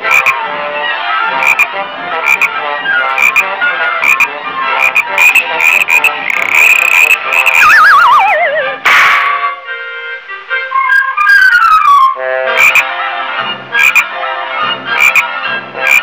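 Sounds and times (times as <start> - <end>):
orchestral cartoon music: 0.0 - 16.0
warbling tone sliding down: 6.3 - 8.8.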